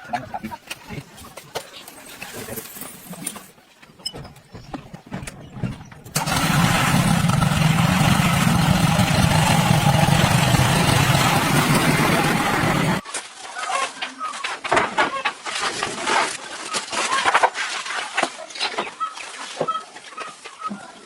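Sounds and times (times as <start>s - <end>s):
motor humming: 6.2s - 13.0s.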